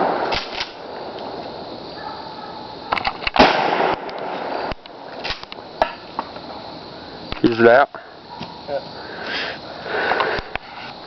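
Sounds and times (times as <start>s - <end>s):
shotgun shot: 0.0s - 0.8s, 3.4s - 5.4s
sharp gun clicks: 0.2s - 0.8s.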